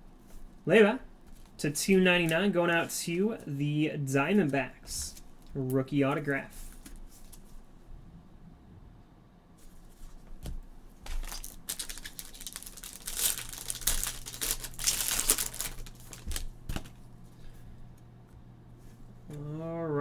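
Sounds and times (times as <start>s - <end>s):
plastic wrapping crinkling and tearing: 11.1s - 17.0s.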